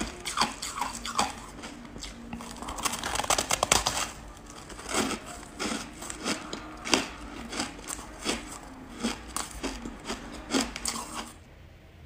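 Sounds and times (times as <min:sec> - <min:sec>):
chewing crunchy ice: 0:00.0 - 0:11.4.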